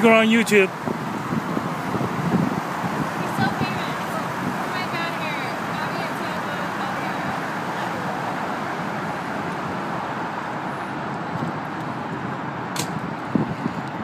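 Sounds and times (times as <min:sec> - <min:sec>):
boat engine and water rushing: 0:00.0 - 0:14.0
sharp click: 0:12.7 - 0:13.0.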